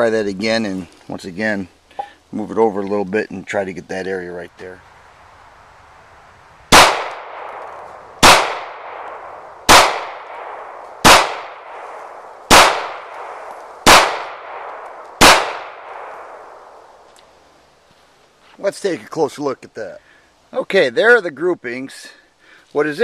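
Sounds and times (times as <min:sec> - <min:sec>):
pistol shots with echo: 0:06.7 - 0:16.8.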